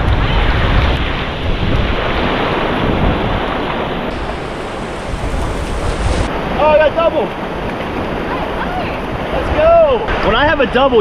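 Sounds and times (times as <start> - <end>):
wind buffeting microphone: 0.0 - 10.8
surf breaking on beach: 0.1 - 11.0
heavy low rumble: 3.8 - 9.2.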